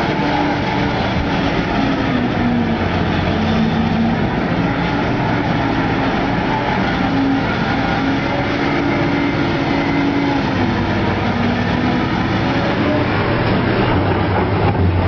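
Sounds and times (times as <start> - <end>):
heavy diesel machinery running: 0.0 - 15.0.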